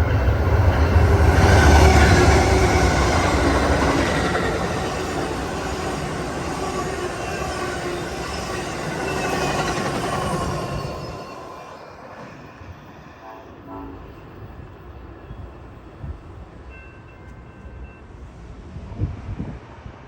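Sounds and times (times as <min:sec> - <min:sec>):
passing train rumble: 0:00.0 - 0:20.0
faint train horn: 0:13.0 - 0:16.1.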